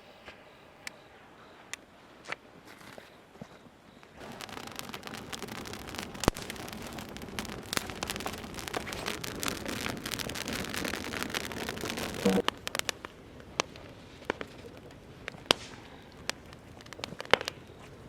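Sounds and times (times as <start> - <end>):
steady hiss: 3.7 - 18.0
campfire crackling and popping: 4.0 - 18.0.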